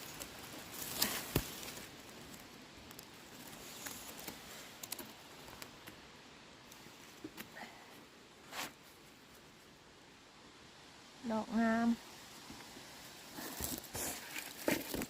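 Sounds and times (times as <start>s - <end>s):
rustling on forest floor: 0.0s - 6.0s, 6.6s - 9.8s, 12.0s - 15.0s
small clicks and snaps: 3.8s - 6.0s.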